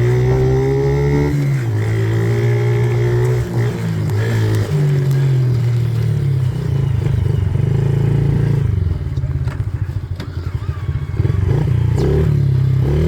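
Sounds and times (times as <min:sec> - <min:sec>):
dirt bike engine: 0:00.0 - 0:13.0.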